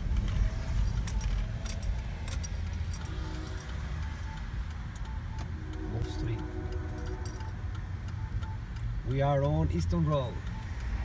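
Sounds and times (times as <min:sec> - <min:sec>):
truck engine and road rumble: 0:00.0 - 0:11.0
metallic clinks and jingles: 0:00.6 - 0:03.9, 0:06.9 - 0:07.5.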